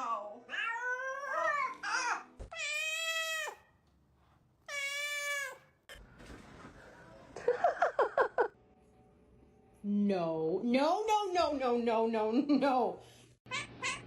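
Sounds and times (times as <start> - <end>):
cat meowing: 13.5 - 14.0.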